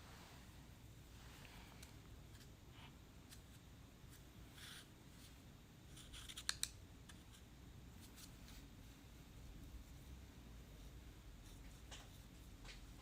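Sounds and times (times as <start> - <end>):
knife scraping clay: 5.9 - 8.4.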